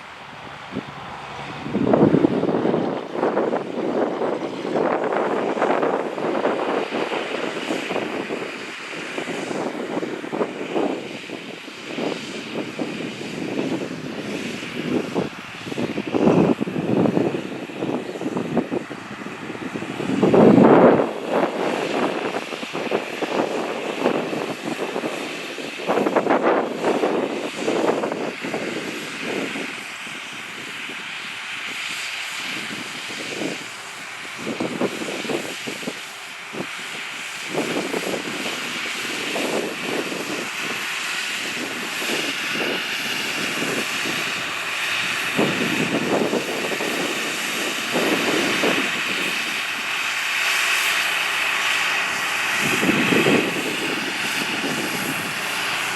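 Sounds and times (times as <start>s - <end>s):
tractor diesel engine running: 0.0s - 26.0s, 26.8s - 55.9s.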